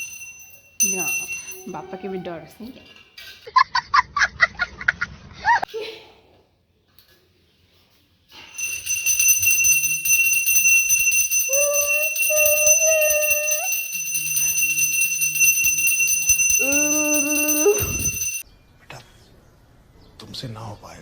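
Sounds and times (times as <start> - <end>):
hand bell ringing rapidly: 0.0 - 2.0, 8.6 - 18.4.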